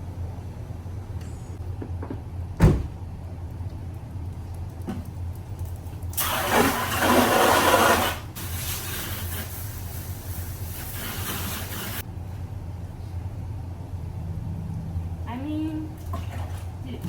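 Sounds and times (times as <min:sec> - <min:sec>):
water splashing onto car: 0:06.2 - 0:09.8.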